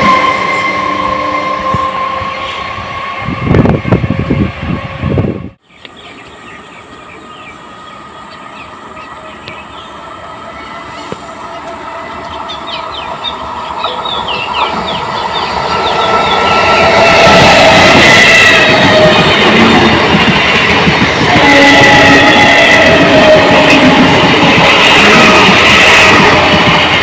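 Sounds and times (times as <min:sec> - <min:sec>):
electric train approaching: 0:00.0 - 0:27.0.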